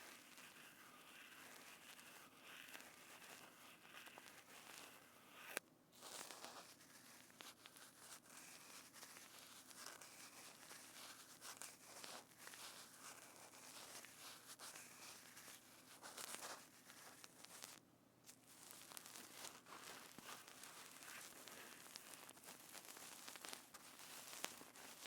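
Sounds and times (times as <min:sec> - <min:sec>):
crackling and crinkling material: 0:00.0 - 0:25.0.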